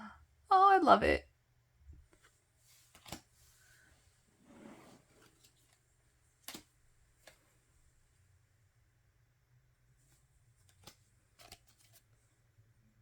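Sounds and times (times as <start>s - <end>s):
soft paper rustle: 2.0s - 8.2s, 9.9s - 12.4s.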